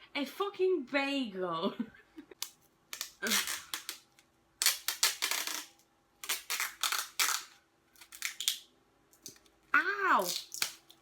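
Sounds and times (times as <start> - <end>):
sticky tape ripping off roll: 2.4 - 8.7.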